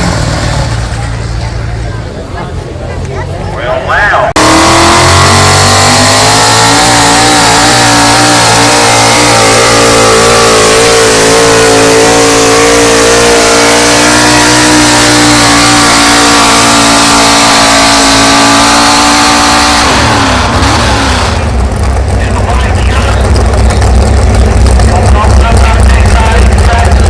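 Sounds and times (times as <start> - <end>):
truck engine at high revs: 0.0 - 27.0.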